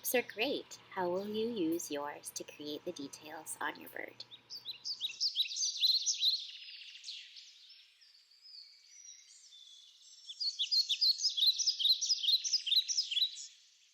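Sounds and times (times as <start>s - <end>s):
songbirds chirping and singing: 3.0s - 13.6s.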